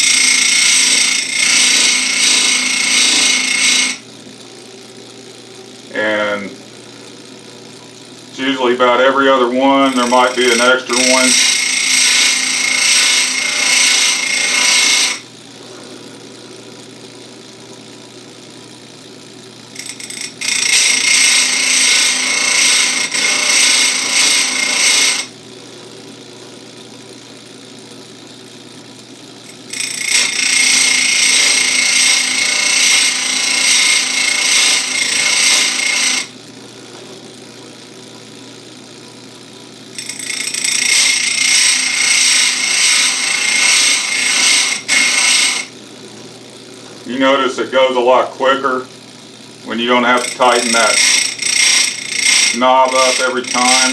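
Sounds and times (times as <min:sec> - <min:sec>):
grinder wheel grinding chain: 0:00.0 - 0:04.0, 0:08.4 - 0:15.2, 0:19.7 - 0:25.3, 0:29.4 - 0:36.3, 0:39.8 - 0:45.8, 0:49.6 - 0:53.9
grinder motor humming: 0:00.0 - 0:53.9.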